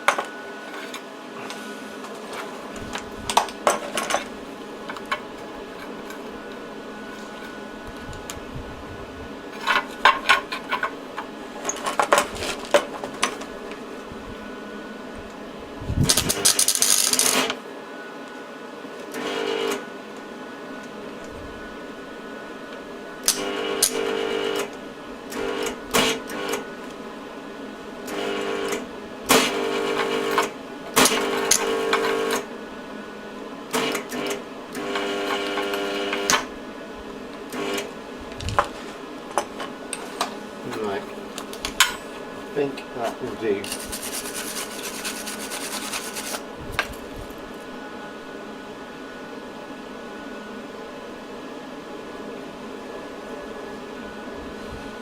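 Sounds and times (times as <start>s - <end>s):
small electric motor running: 43.7s - 46.4s.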